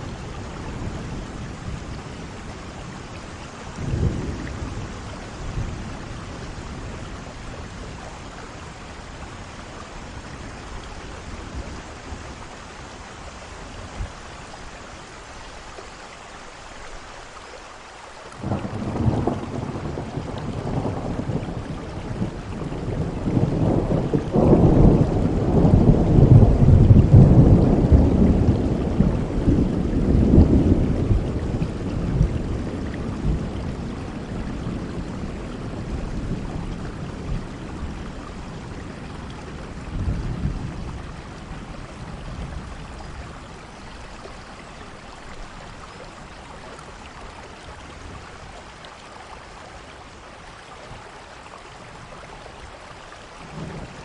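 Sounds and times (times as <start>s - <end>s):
heavy rain: 0.0s - 54.0s
rolling thunder: 3.4s - 8.0s, 18.4s - 43.7s.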